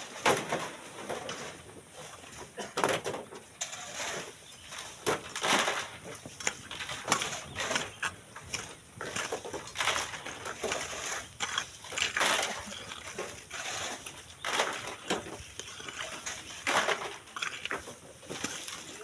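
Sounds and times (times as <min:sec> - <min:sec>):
shovels scraping sand and gravel: 0:00.0 - 0:19.0.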